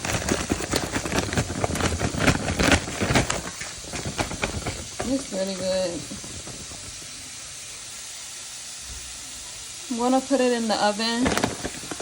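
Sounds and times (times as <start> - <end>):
vegetables sizzling in oil: 2.8 - 12.0.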